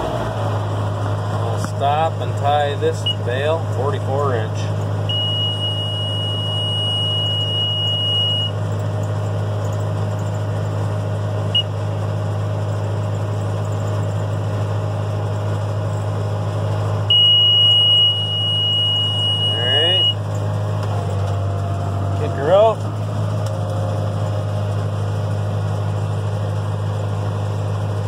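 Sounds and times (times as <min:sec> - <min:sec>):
tractor diesel engine running: 0:00.0 - 0:28.0
high steady monitor beep: 0:05.1 - 0:08.6, 0:17.1 - 0:20.2.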